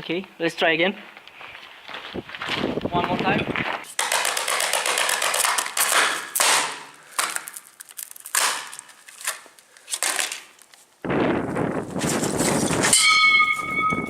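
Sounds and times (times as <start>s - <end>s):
metal bat striking phone pieces: 3.9s - 7.6s, 8.3s - 8.9s.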